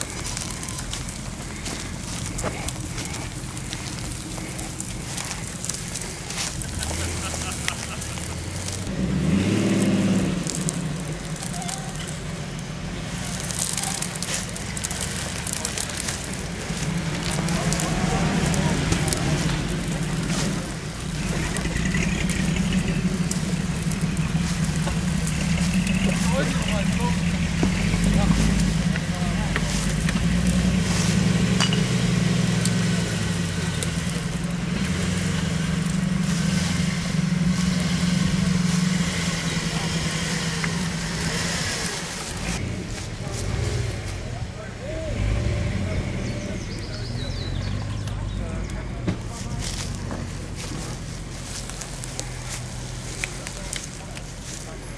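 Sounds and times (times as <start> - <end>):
crackles and ticks: 0.0 - 44.2, 46.7 - 54.9
vehicle engine running low: 0.0 - 54.9.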